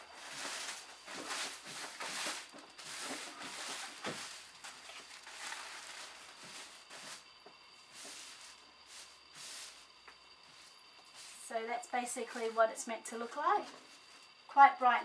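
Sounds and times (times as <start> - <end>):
plastic tablecloth rustling: 0.0 - 7.2.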